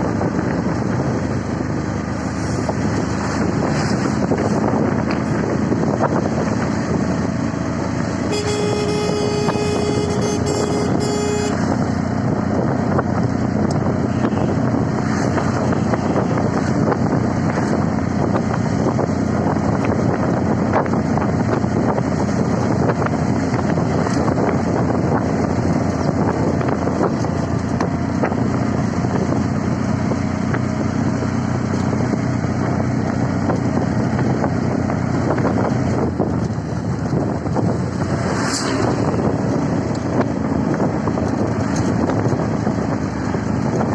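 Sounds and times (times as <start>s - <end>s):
engine and road noise: 0.0s - 43.9s
vehicle horn blast: 8.2s - 11.8s, 14.1s - 14.6s.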